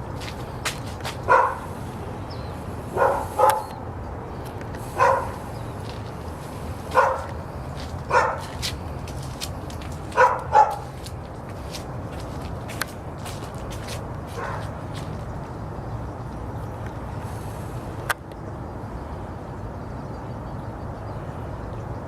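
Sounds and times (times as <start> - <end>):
steady low rumble: 0.0 - 20.0
dog barking: 1.2 - 1.7, 2.9 - 3.8, 4.9 - 5.4, 6.9 - 7.4, 8.1 - 8.5, 10.2 - 10.9, 14.4 - 14.7.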